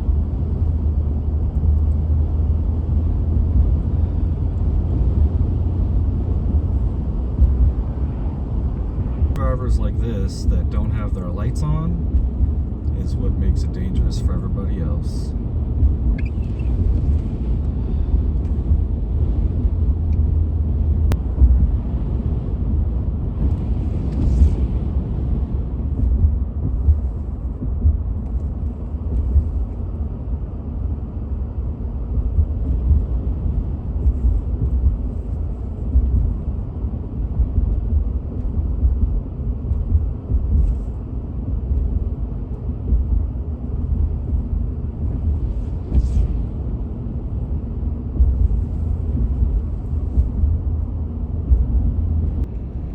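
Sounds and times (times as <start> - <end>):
engine and tyre rumble inside cab: 0.0 - 52.9.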